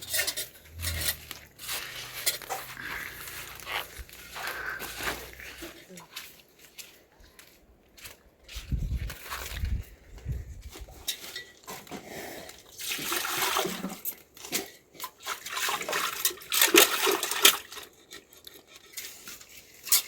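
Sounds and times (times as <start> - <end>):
water pouring and splashing: 12.4 - 20.0.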